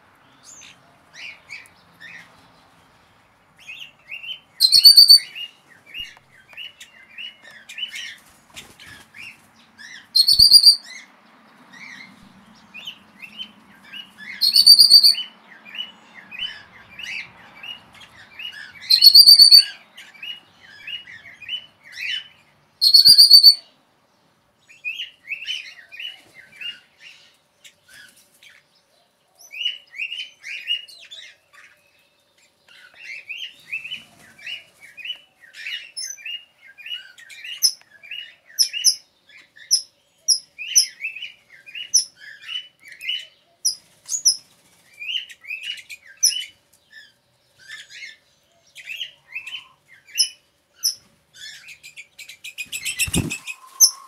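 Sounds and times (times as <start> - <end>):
birds chirping: 0.0 - 54.0
loud shrill bird calls: 3.7 - 6.1, 9.8 - 11.1, 12.8 - 23.7, 48.8 - 51.8, 52.5 - 54.0
thin high chirps: 4.6 - 5.4, 10.2 - 10.8, 14.4 - 15.2, 18.9 - 19.7, 22.8 - 23.6, 52.6 - 54.0.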